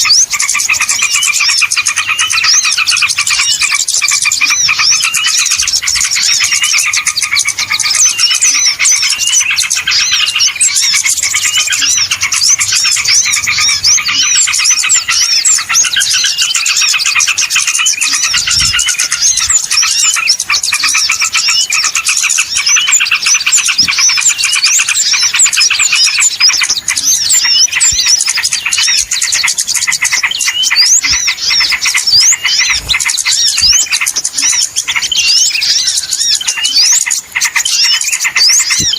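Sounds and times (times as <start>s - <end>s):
chorus of small birds chirping: 0.0s - 38.9s.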